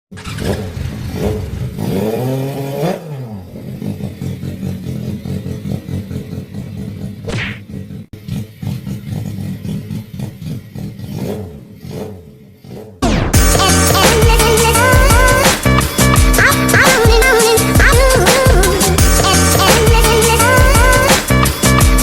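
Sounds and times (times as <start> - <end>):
motorcycle engine revving: 0.1 - 22.0.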